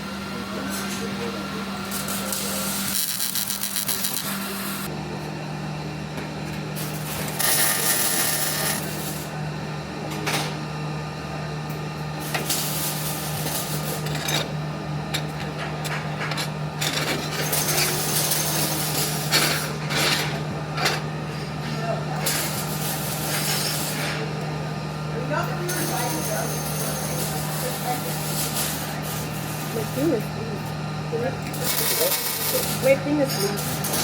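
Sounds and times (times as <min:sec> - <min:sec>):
welding machine hum: 0:00.0 - 0:34.0
welding arc crackling: 0:01.9 - 0:04.9, 0:31.5 - 0:33.0.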